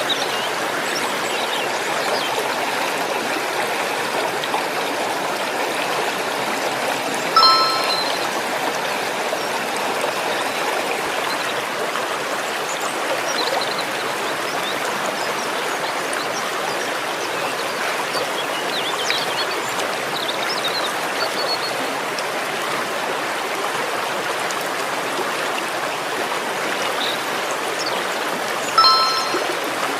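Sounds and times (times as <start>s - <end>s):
stream water running: 0.0s - 29.9s
short chime-like tone: 7.4s - 8.4s, 28.8s - 29.8s.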